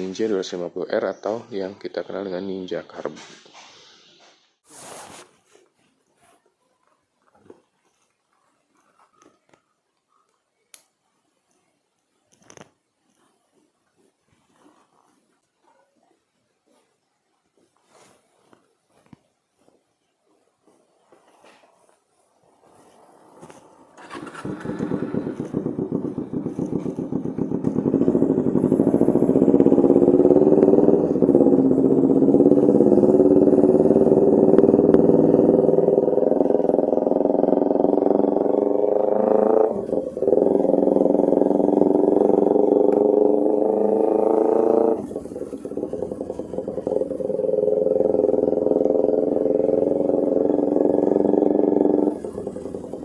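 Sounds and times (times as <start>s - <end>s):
motorcycle engine running loud: 22.8s - 53.0s.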